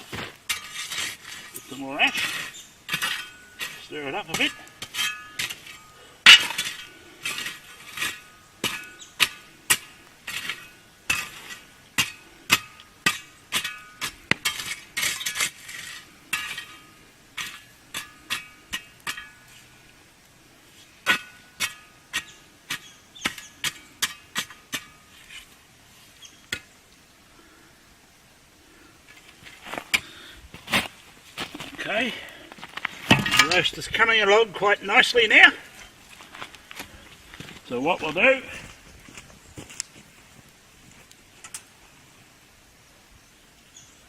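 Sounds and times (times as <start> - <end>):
metal tool clanking on metal: 1.5 - 9.1, 16.3 - 19.5, 33.1 - 33.9.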